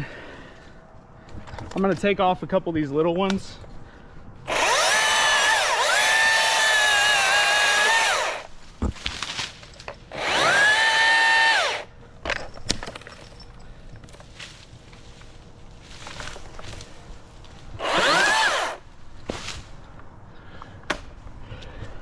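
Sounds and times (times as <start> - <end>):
electric chainsaw motor whining: 4.5 - 8.5, 10.1 - 11.9, 17.8 - 18.8.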